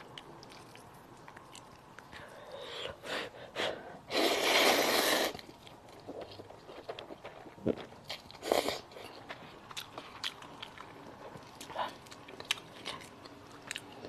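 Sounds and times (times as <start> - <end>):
loud slurp of food: 4.1 - 5.4.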